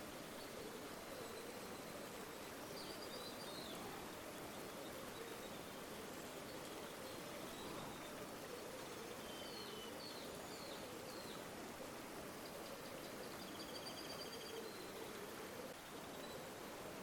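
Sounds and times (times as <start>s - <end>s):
river water flowing: 0.0s - 13.5s.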